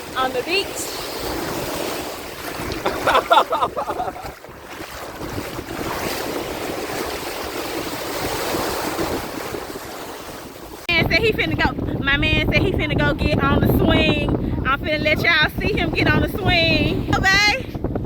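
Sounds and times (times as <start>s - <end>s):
sea waves washing onto beach: 0.0s - 10.9s
wind buffeting microphone: 0.0s - 18.0s.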